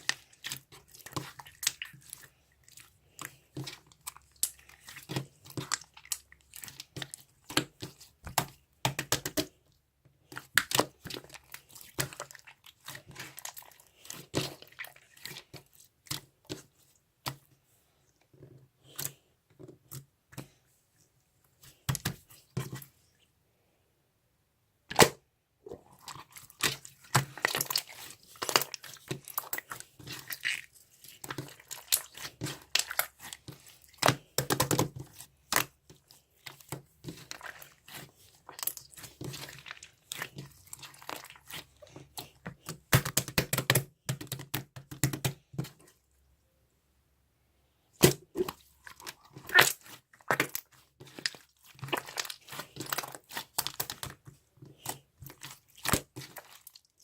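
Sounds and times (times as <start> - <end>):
close crinkling and crackling: 25.7 - 44.4, 48.0 - 57.0.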